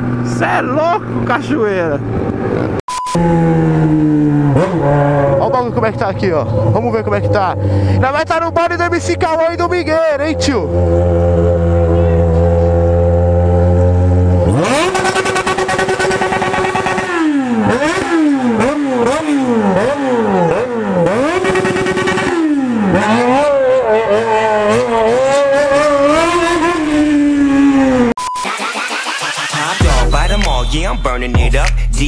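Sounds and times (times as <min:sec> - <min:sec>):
motorcycle engine revving hard: 0:00.0 - 0:09.6, 0:10.2 - 0:28.2
low engine drone: 0:00.0 - 0:21.3.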